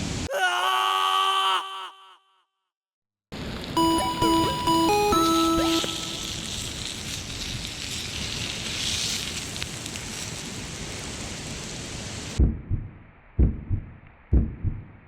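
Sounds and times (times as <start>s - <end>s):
campfire crackling: 5.4s - 12.4s.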